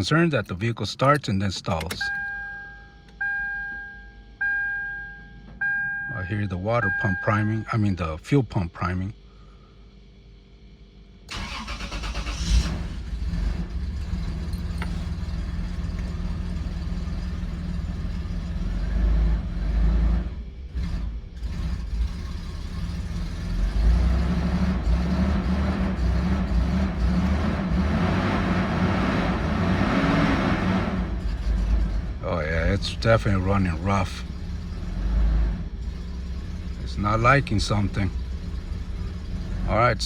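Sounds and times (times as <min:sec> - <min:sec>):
engine cranking and starting: 0:11.3 - 0:17.2
engine running rough: 0:11.3 - 0:40.0.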